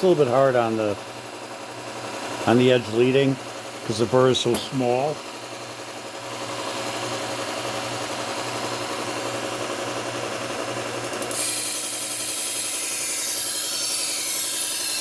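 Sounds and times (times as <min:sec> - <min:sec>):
belt sander motor hum: 0:00.0 - 0:15.0
knife grinding on sander belt: 0:11.2 - 0:15.0.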